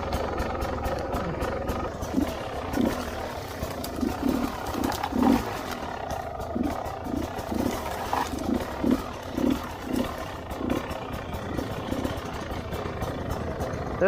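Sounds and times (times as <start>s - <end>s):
motorbike engine revving: 0.0s - 14.0s.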